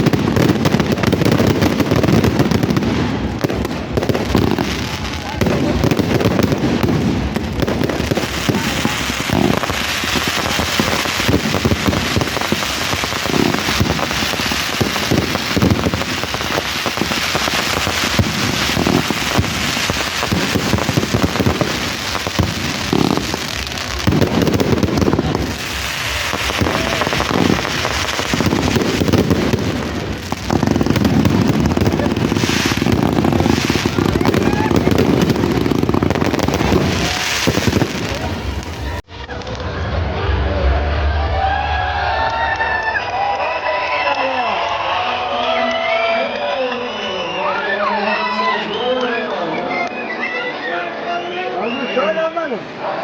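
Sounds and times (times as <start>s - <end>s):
fireworks crackling: 0.0s - 40.1s
crowd murmuring: 0.0s - 53.0s.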